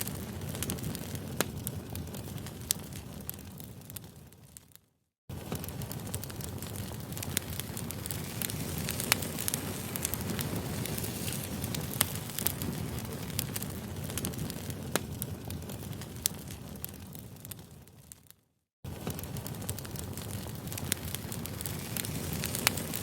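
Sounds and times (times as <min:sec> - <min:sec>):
campfire burning with low rush: 0:00.0 - 0:23.0
fire crackling and popping: 0:00.0 - 0:23.0.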